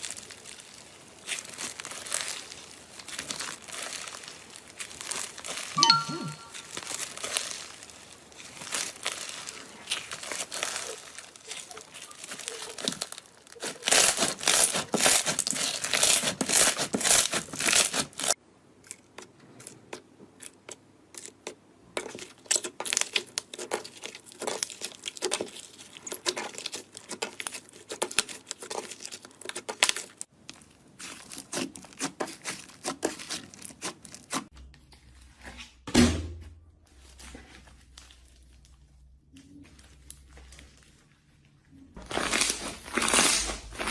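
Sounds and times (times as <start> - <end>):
crunchy material crackling: 0.0 - 5.8, 6.5 - 18.4, 37.0 - 43.9.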